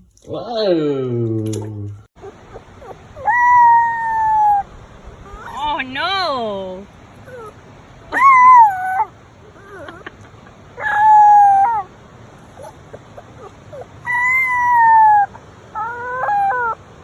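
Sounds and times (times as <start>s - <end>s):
animal giving high cries: 2.2s - 5.8s, 7.2s - 10.1s, 10.8s - 16.9s.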